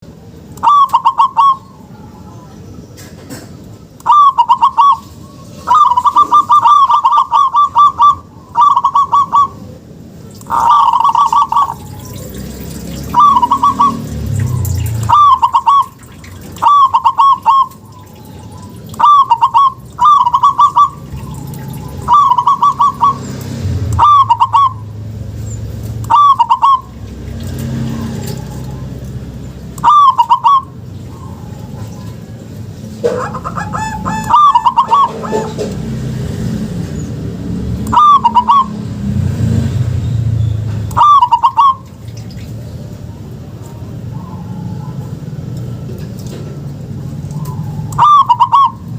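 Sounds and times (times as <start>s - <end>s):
dove cooing: 0.6s - 2.6s, 4.1s - 9.8s, 10.4s - 23.3s, 24.0s - 24.9s, 26.0s - 27.0s, 29.8s - 32.4s, 33.0s - 35.8s, 37.8s - 38.8s, 40.9s - 41.9s, 47.3s - 48.9s.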